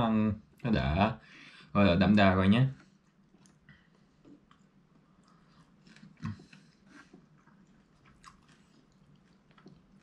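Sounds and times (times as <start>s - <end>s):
chewing steak: 2.8s - 10.0s.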